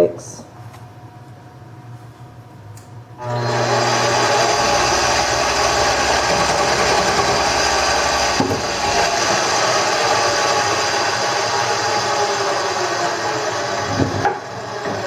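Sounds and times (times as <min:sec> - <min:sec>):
turning tool scraping wood: 0:03.2 - 0:15.0
wood lathe whirring: 0:03.2 - 0:15.0.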